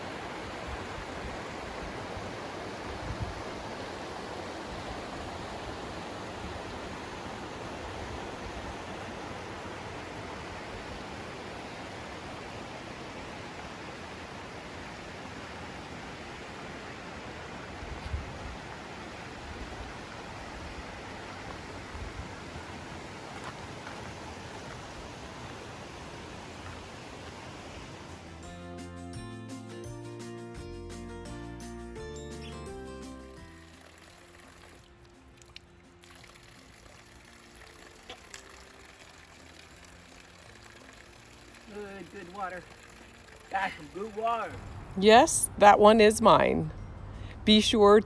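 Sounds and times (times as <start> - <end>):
rushing mountain water: 0.0 - 28.5, 33.2 - 46.5
water pouring: 33.3 - 45.5.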